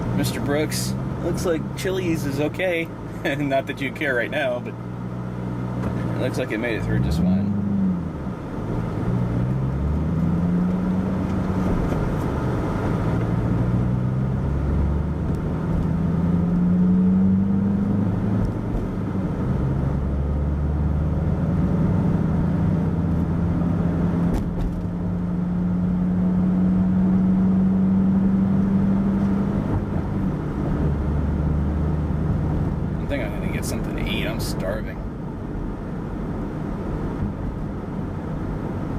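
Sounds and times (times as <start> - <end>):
car engine accelerating through gears: 4.3 - 35.0.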